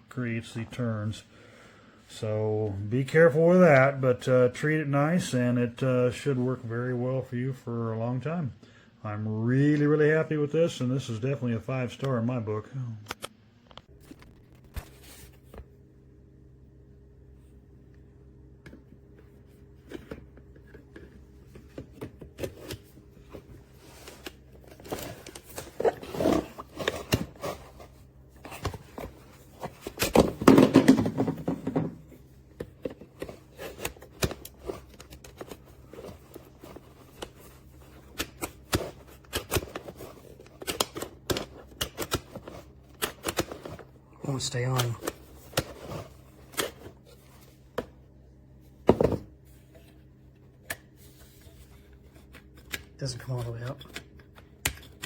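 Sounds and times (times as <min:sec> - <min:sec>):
rustling and scraping: 0:14.0 - 0:15.7, 0:19.1 - 0:40.6.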